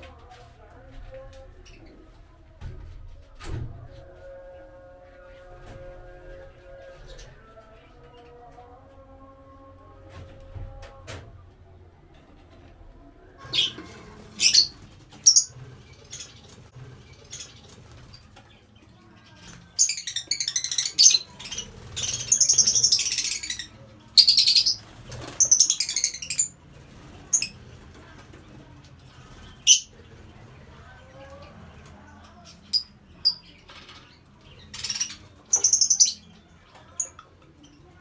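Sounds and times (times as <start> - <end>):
lovebirds chirping: 13.4 - 28.3, 29.0 - 38.0.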